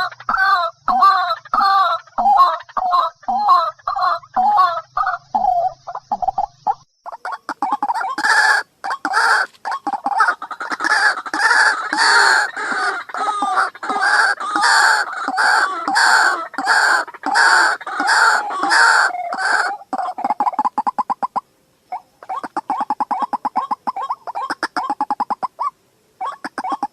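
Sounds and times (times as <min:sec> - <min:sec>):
waterhen harsh call: 0:07.2 - 0:26.9.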